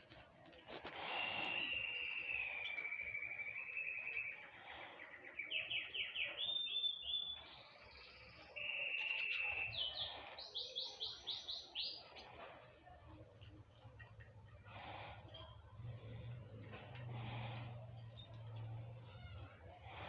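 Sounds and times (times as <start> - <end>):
small songbird singing: 1.0 - 12.3.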